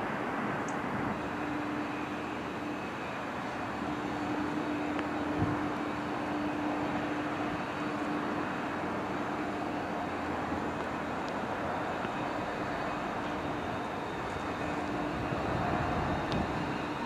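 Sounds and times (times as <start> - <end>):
electric train running: 0.0 - 17.0.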